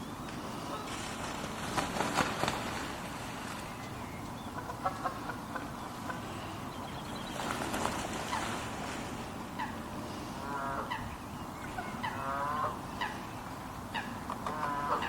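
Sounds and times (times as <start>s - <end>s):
small birds chirping: 3.5s - 8.6s
bird nasal calls: 9.5s - 15.0s.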